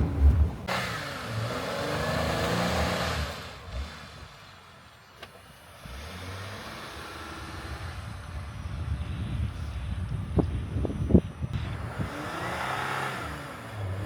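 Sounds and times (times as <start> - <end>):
off-road vehicle engine revving: 0.0 - 4.7, 5.6 - 9.2, 11.6 - 14.0.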